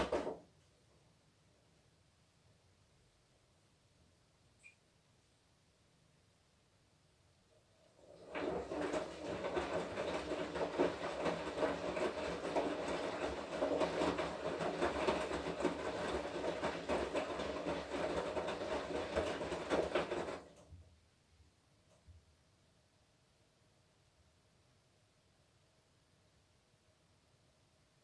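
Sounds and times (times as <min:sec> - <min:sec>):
washing machine drum rattling: 0:08.1 - 0:20.6.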